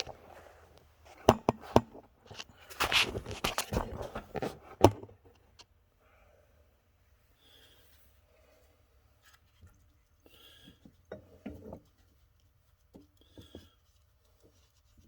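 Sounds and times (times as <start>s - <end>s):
scraping and rustling: 0.0s - 5.2s.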